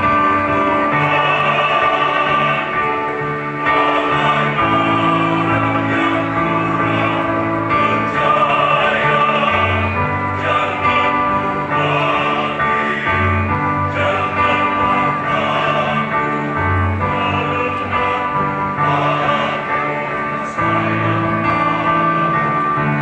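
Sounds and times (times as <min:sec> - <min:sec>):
choir singing in harmony: 0:00.0 - 0:23.0.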